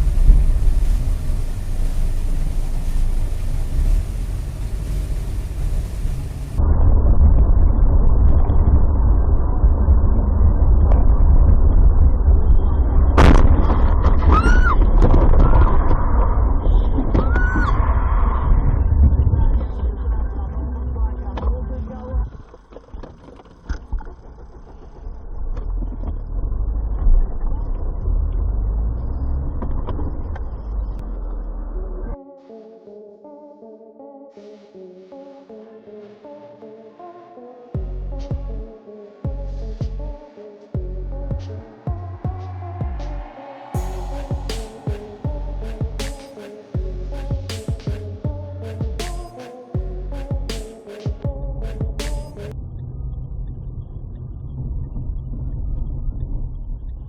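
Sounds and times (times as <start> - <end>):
car road and engine rumble: 0.0 - 6.6
car driving rumble: 0.0 - 8.5, 40.8 - 50.6.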